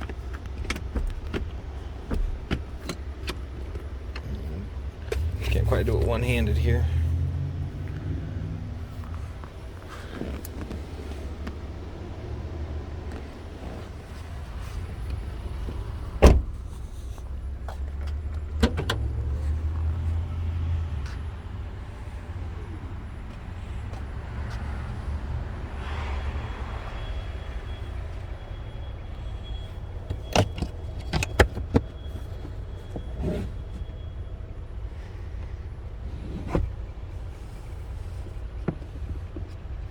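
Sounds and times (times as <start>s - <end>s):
clicks and knocks of car fittings: 0.0s - 4.3s, 30.1s - 32.0s.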